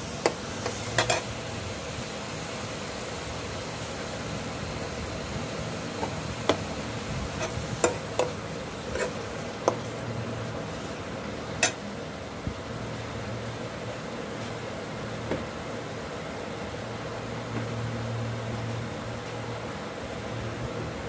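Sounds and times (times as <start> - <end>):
masala sizzling in a pan: 0.0 - 16.4
steady hum: 0.0 - 21.0
spoon tapping against pan: 9.0 - 9.8.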